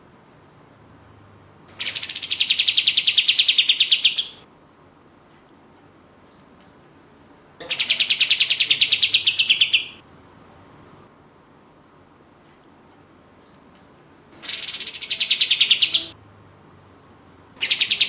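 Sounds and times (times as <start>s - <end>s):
songbird singing rapid call: 1.8s - 4.4s, 7.7s - 10.0s, 14.4s - 16.2s, 17.6s - 18.0s.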